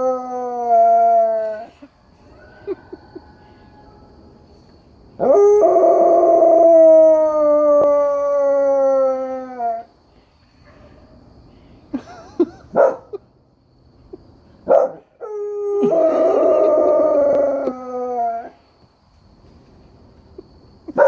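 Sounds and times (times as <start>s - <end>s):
dog howling: 0.0s - 2.8s, 15.2s - 18.6s.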